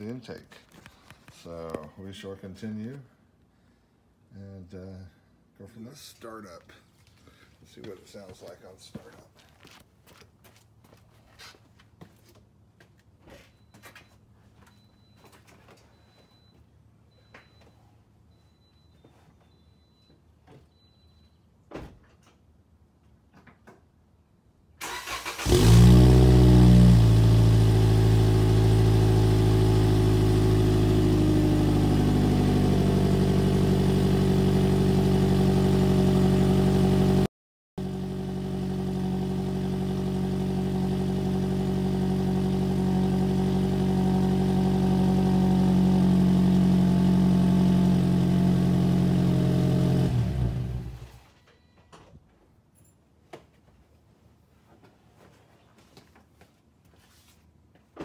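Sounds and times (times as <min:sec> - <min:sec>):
car engine starting and idling: 0:24.8 - 0:51.3.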